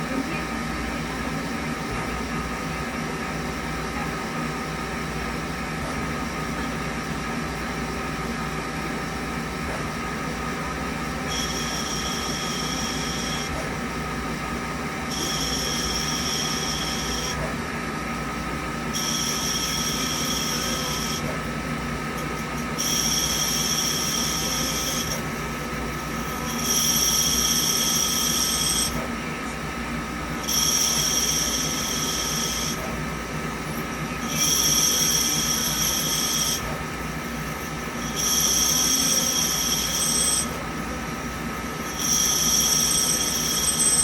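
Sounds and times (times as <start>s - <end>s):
lathe machine hum: 0.0s - 44.0s
high-pitched ring of cutting tool: 11.0s - 13.7s, 15.0s - 17.5s, 18.9s - 21.4s, 22.8s - 25.2s, 26.0s - 29.1s, 30.4s - 33.0s, 33.8s - 36.8s, 37.5s - 40.7s, 41.8s - 44.0s.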